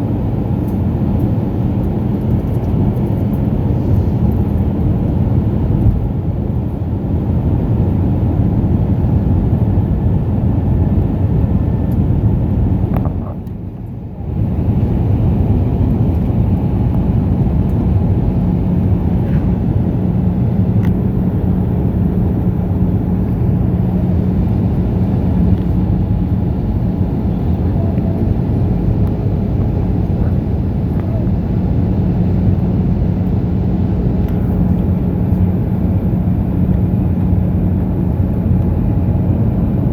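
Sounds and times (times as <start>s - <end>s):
airliner cabin engine rumble: 0.0s - 39.9s
steady low hum: 0.0s - 39.9s.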